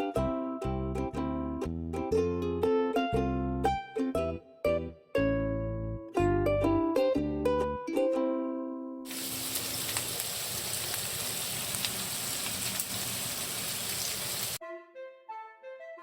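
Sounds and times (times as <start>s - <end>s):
plucked-string music: 0.0s - 9.0s
food sizzling in a frying pan: 9.1s - 14.6s.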